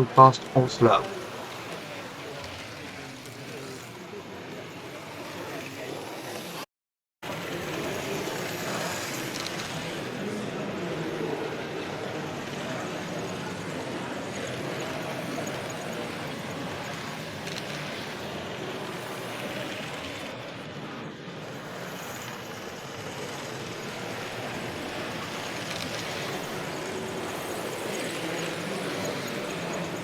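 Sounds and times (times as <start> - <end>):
busy exhibition hall noise: 0.0 - 1.0
model trains running: 0.0 - 6.6, 7.3 - 30.0.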